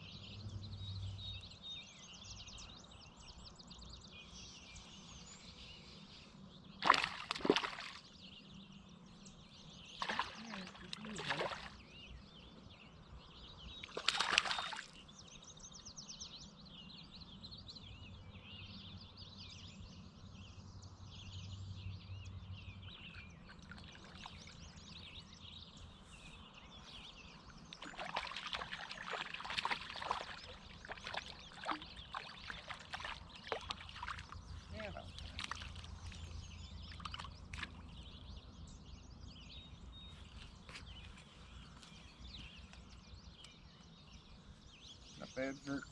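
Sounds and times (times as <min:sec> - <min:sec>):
birds chirping: 0:00.0 - 0:45.9
water splashing and sloshing: 0:06.8 - 0:08.2, 0:09.9 - 0:12.0, 0:13.8 - 0:15.1, 0:23.0 - 0:25.1, 0:27.3 - 0:38.2.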